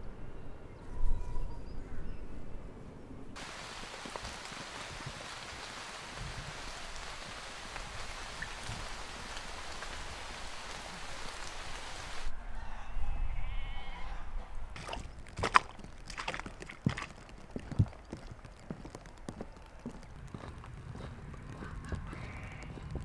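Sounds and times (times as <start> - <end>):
heavy rain falling: 3.4 - 12.3
raindrops ticking: 3.4 - 12.3, 14.8 - 23.0.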